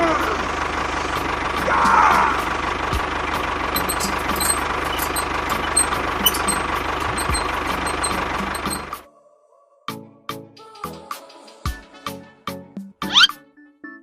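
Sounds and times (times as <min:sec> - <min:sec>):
engine idling: 0:00.0 - 0:09.0.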